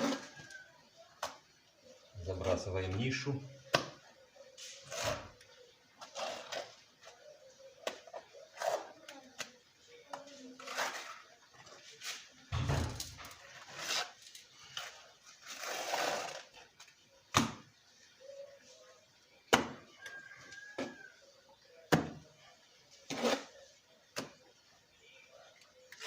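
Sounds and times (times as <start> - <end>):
trowel scraping: 10.4 - 16.7, 23.0 - 23.6.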